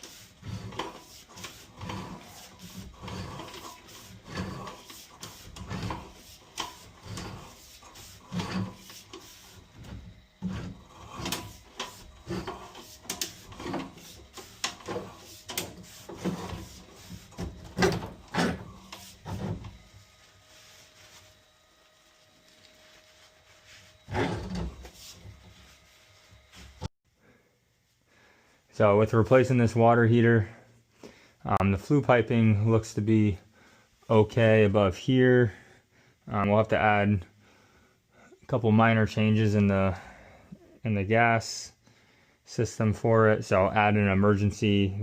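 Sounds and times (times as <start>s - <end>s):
knocks and rubbing scrapes: 0.0s - 26.9s.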